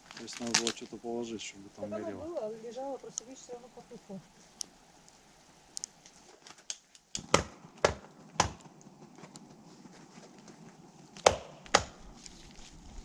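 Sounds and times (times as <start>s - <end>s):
axe chopping wood: 7.2s - 8.7s, 11.2s - 12.0s.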